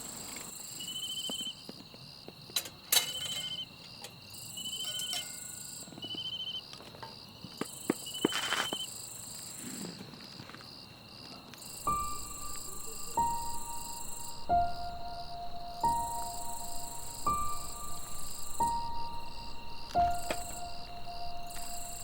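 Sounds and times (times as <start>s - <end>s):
crickets chirping in pulsed trills: 0.0s - 9.6s, 10.7s - 22.0s
high insect drone: 0.0s - 22.0s
music with held tones: 11.9s - 22.0s.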